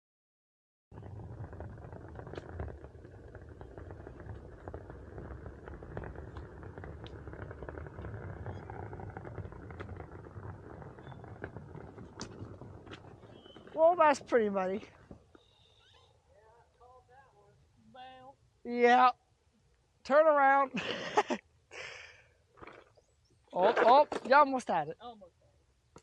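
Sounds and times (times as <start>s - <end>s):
wheel rolling over rough trail: 0.9s - 15.8s, 22.5s - 24.8s
grit ticking and clicking: 1.0s - 15.4s.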